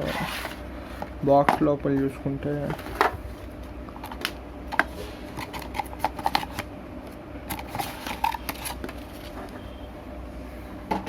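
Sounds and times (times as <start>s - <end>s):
cardboard and paper rustling: 0.0s - 1.1s, 2.6s - 6.6s, 7.5s - 9.6s.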